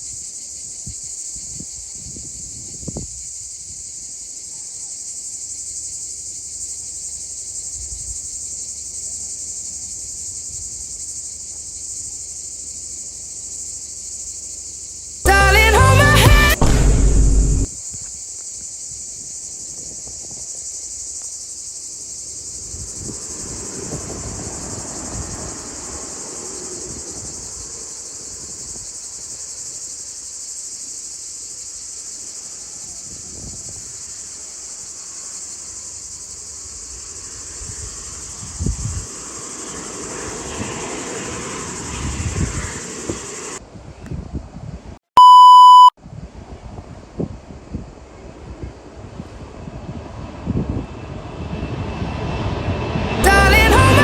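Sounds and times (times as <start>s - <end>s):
insects calling: 0.0s - 15.3s, 17.7s - 43.6s
loud burst of music: 15.3s - 17.7s, 53.2s - 54.0s.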